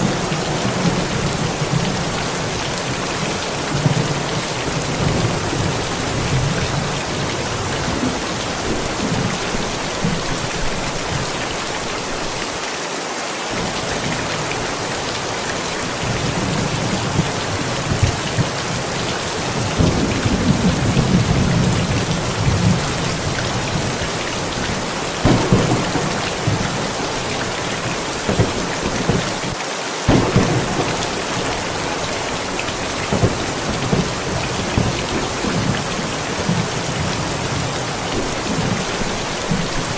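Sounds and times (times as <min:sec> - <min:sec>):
thunder rumbling: 0:00.0 - 0:12.3, 0:13.5 - 0:39.9
steady rain: 0:00.0 - 0:39.9
sharp thunder cracks: 0:13.6 - 0:39.9.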